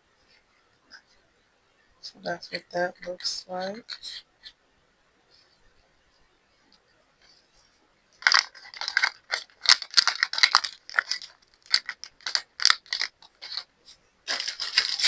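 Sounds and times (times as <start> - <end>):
plastic packaging rustling: 8.2 - 13.7, 14.3 - 15.0
small items clicking and rattling: 8.2 - 13.7, 14.3 - 15.0.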